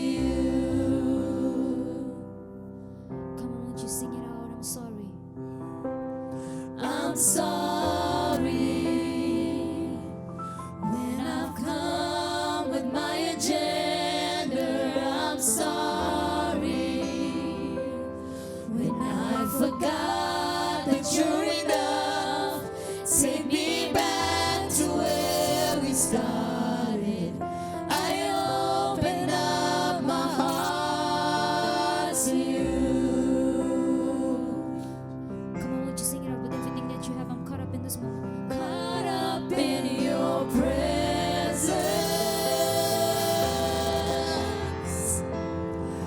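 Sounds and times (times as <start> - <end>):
voices singing gospel song: 0.0 - 2.4, 6.5 - 35.0, 38.5 - 46.0
sustained keyboard accompaniment: 0.0 - 46.0.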